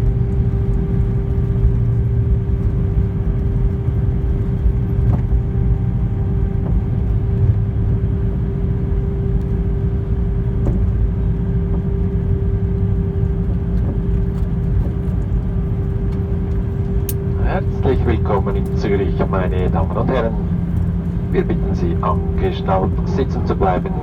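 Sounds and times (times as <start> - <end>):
aircraft cabin low rumble: 0.0 - 24.0
steady hum: 15.4 - 24.0.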